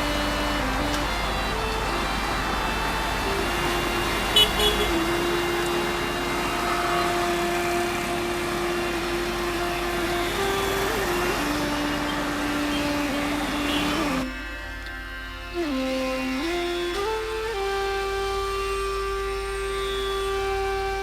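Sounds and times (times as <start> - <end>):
road noise: 0.0 - 21.0.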